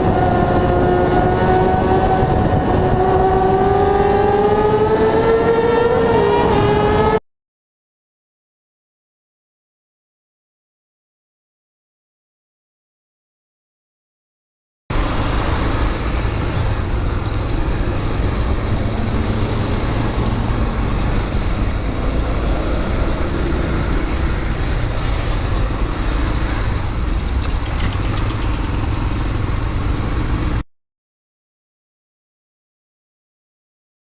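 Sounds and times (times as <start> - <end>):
motorcycle engine: 0.0 - 7.2, 14.9 - 30.6
road wind noise: 0.0 - 7.2, 14.9 - 30.6.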